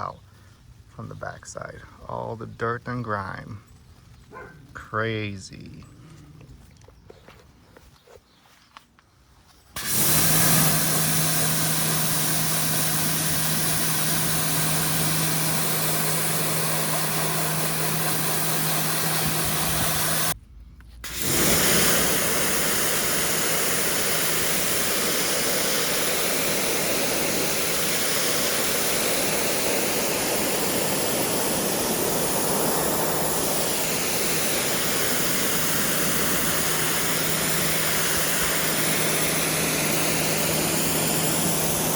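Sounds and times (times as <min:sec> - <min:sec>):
pressure washer motor hum: 0:09.7 - 0:20.4, 0:21.0 - 0:41.9
water spray hissing: 0:09.8 - 0:20.4, 0:21.0 - 0:41.9.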